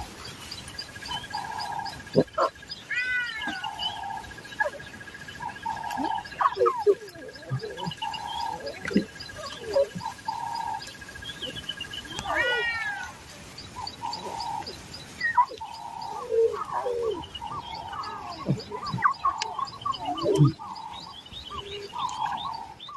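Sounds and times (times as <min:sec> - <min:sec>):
longer falling animal call: 0:02.9 - 0:04.2, 0:12.0 - 0:13.2.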